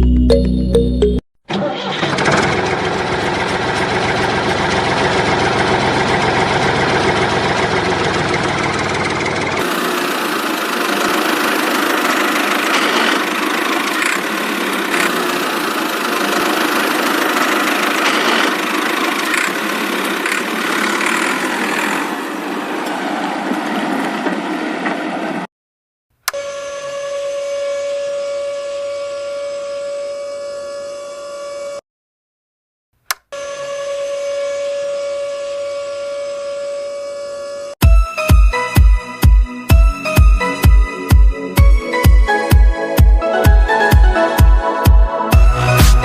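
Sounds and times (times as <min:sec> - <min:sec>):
small motor clattering: 0:02.0 - 0:22.2.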